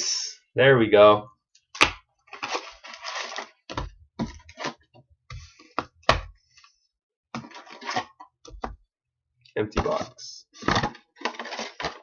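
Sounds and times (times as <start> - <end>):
card packs rustling: 2.3 - 4.8, 7.4 - 8.1, 9.8 - 12.0.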